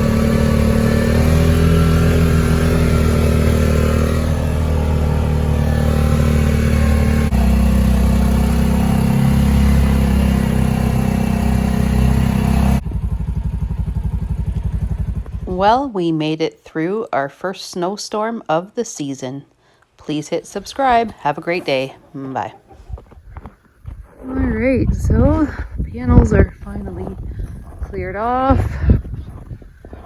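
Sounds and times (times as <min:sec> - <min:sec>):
snowblower engine running: 0:00.0 - 0:15.7.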